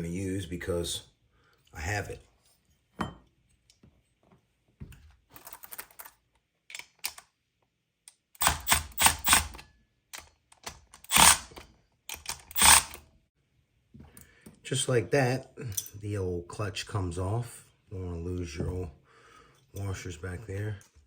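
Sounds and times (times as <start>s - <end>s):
impact drill bursts: 8.4s - 9.6s, 11.1s - 11.6s, 12.4s - 13.0s.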